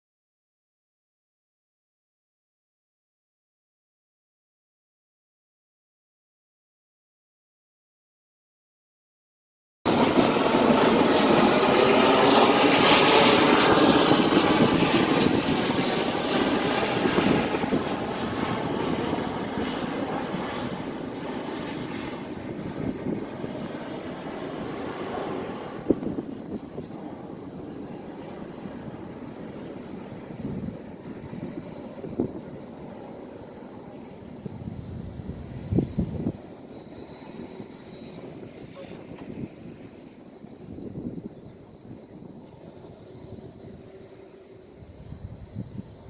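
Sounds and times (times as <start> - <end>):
airplane flying overhead: 9.9 - 46.0.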